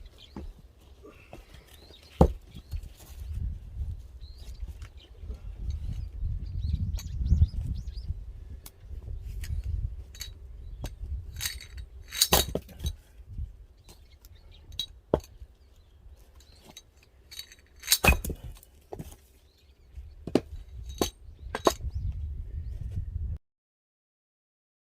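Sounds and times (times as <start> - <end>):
axe chopping firewood: 2.2 - 2.5, 12.2 - 13.0, 17.9 - 19.2.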